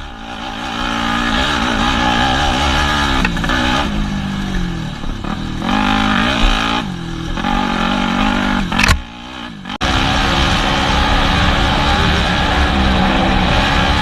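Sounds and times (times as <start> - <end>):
dirt bike engine revving: 0.0 - 14.0
steady rushing noise: 0.0 - 14.0.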